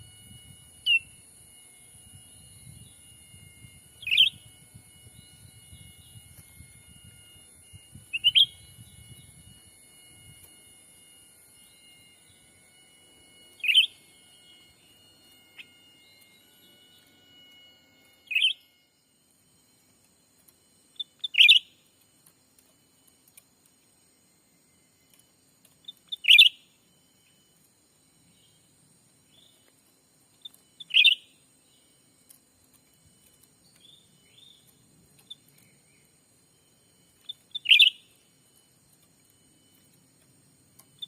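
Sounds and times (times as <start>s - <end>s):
loud bird calls: 37.2s - 38.2s.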